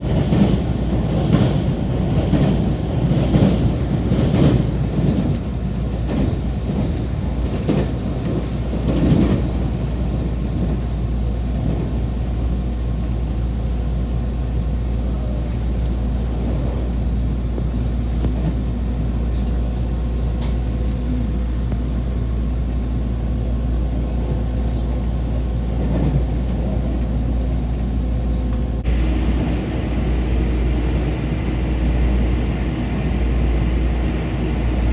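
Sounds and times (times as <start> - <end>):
train clatter: 0.0 - 34.9
train rumbling: 0.0 - 34.9.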